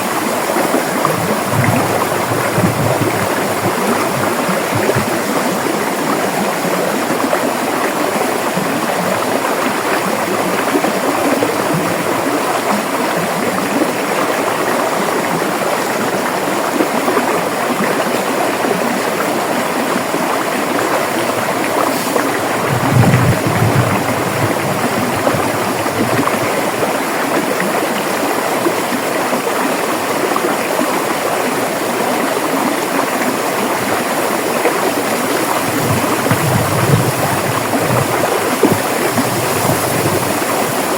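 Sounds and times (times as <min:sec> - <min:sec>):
river water rushing and gurgling: 0:00.0 - 0:40.9.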